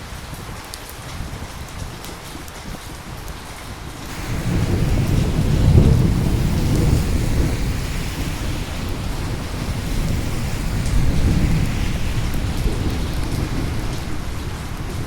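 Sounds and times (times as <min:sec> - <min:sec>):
rain hissing: 0:04.1 - 0:15.0
thunder rumbling: 0:04.1 - 0:15.0.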